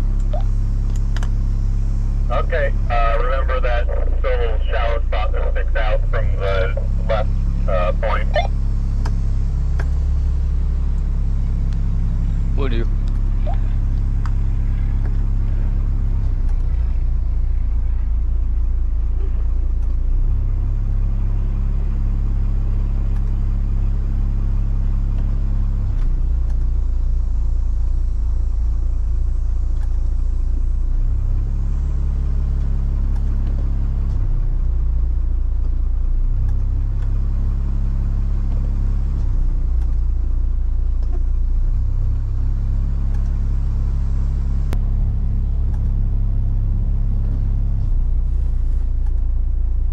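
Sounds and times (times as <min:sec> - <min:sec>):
boat engine rumbling: 0:00.0 - 0:20.4.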